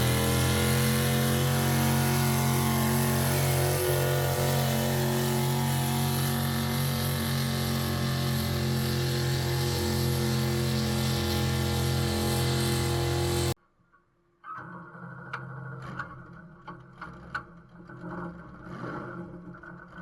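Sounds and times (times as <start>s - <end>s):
vehicle engine running hard: 0.0s - 13.6s.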